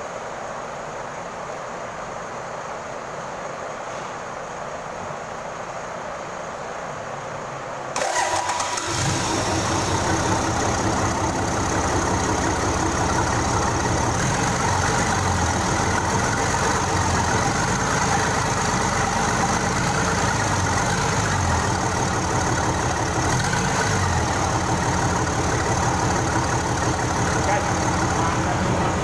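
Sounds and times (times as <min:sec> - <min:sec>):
diesel engine starting and idling: 0:08.0 - 0:29.0.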